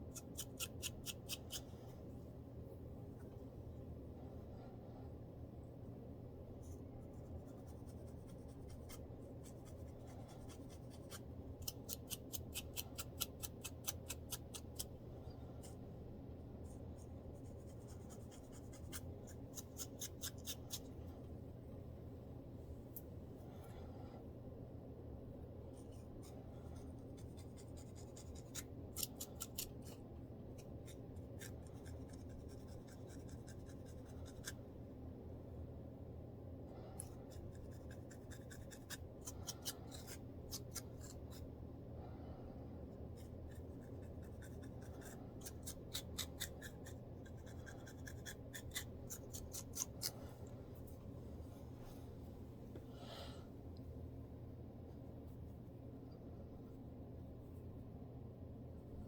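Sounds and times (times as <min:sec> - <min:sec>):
low steady hum: 0:00.0 - 0:59.0
fingers scratching scalp: 0:00.1 - 0:01.7, 0:07.0 - 0:14.9, 0:16.7 - 0:20.9, 0:25.8 - 0:30.0, 0:30.6 - 0:34.6, 0:37.0 - 0:41.5, 0:43.2 - 0:50.2.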